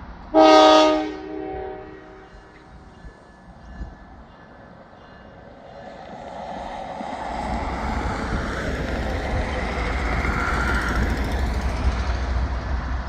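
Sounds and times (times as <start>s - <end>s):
freight train rumbling on rails: 0.0s - 13.0s.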